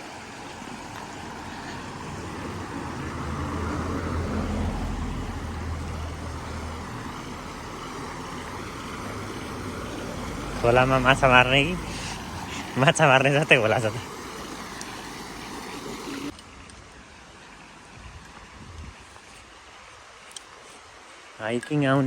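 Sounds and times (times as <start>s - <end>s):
vehicle driving past: 0.8s - 16.1s.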